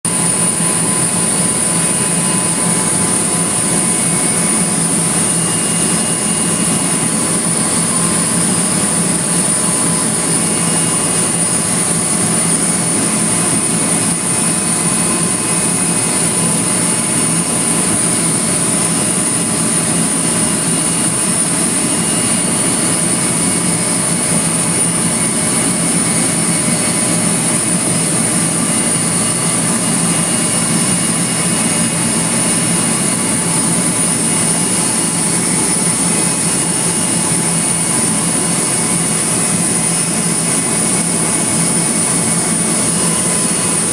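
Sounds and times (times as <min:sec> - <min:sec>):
loud mechanical drone: 0:00.1 - 0:43.9.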